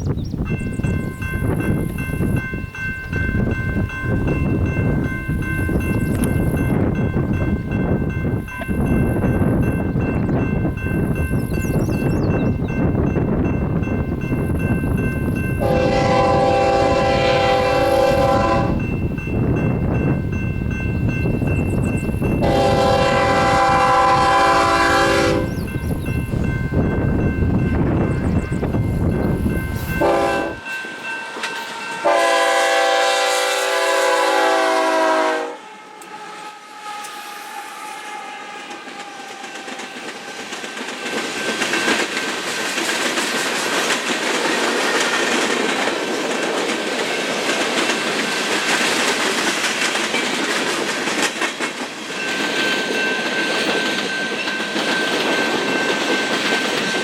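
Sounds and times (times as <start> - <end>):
train wheels rumbling on rails: 0.0 - 57.0
locomotive air horn: 15.6 - 18.8, 22.4 - 25.5, 30.0 - 30.6, 32.0 - 39.8.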